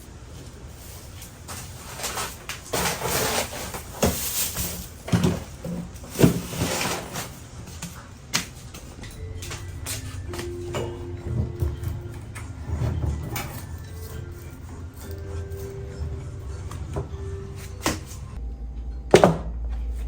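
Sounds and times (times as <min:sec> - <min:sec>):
grocery bags rustling: 0:00.0 - 0:18.4
knocks and clunks of items: 0:01.2 - 0:15.1.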